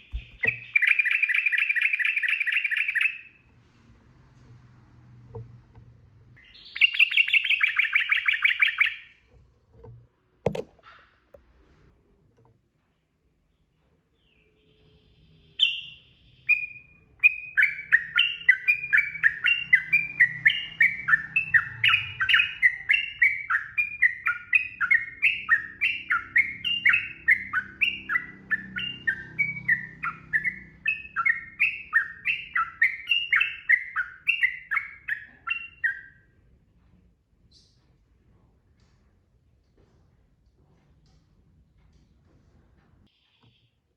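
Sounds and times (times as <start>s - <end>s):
bulbul singing rolling song: 0.0s - 3.5s, 6.2s - 9.4s, 14.4s - 36.3s.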